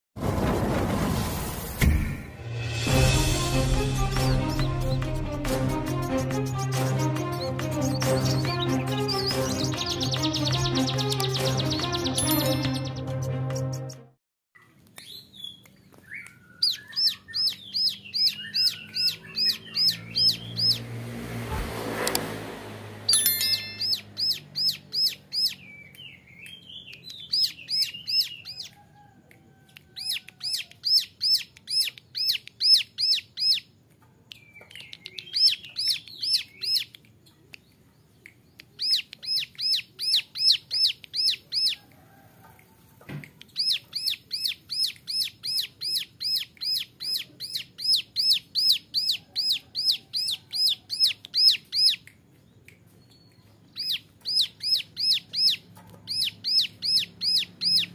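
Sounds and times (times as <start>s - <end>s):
bird singing high notes: 6.0s - 13.2s, 23.1s - 28.6s
bird twittering: 15.0s - 20.9s, 23.1s - 28.8s, 29.9s - 33.7s, 34.4s - 41.8s, 43.4s - 52.0s, 53.0s - 57.9s.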